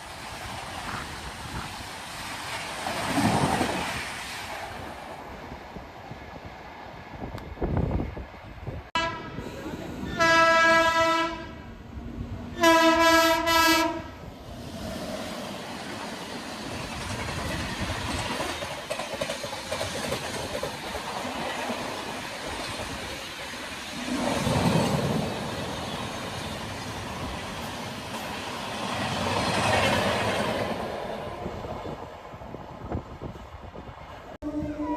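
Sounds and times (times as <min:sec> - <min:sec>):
train rushing past: 0:00.0 - 0:34.9
train horn blasts: 0:09.0 - 0:11.6, 0:12.6 - 0:14.2, 0:34.4 - 0:34.9
train wheel clatter: 0:15.8 - 0:30.8.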